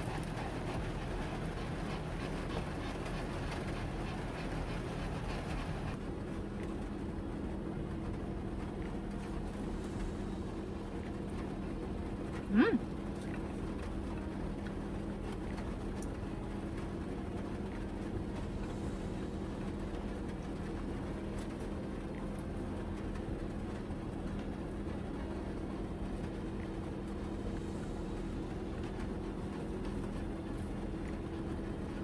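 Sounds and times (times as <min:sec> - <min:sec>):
heavy rain on vehicle roof: 0:00.0 - 0:06.0
low hum: 0:00.0 - 0:06.0.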